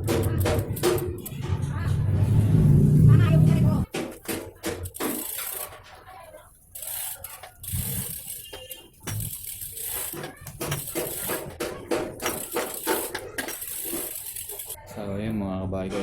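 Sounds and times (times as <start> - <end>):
metallic clicks from bike tools: 4.7 - 6.0, 6.8 - 11.6, 12.2 - 14.8.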